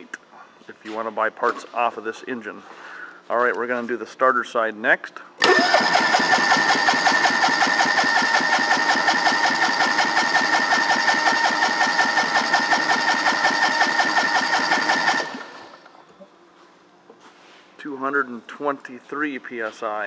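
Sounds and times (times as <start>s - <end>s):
engine compression chugging: 5.4s - 16.0s
starter motor whine: 5.4s - 16.0s.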